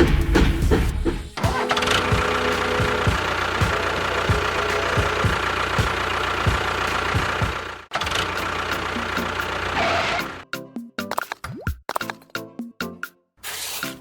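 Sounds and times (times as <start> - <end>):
engine idling with knocking: 1.8 - 9.9.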